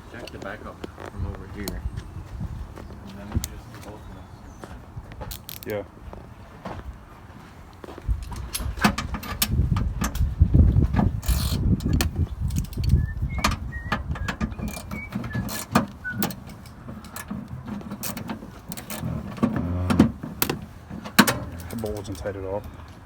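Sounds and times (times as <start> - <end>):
tools clicking and clanking: 5.3 - 5.7, 8.2 - 23.0
low thuds: 8.1 - 22.2
short squeaks: 11.1 - 22.2.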